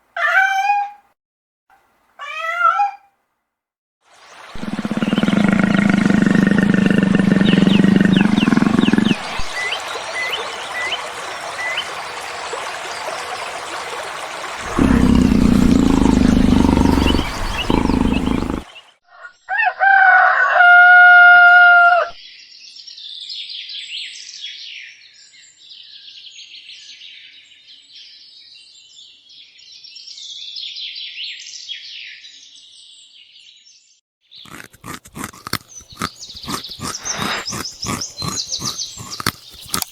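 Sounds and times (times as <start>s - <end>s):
poultry clucking: 4.6s - 9.6s, 34.5s - 39.9s
rooster crowing: 19.5s - 22.1s.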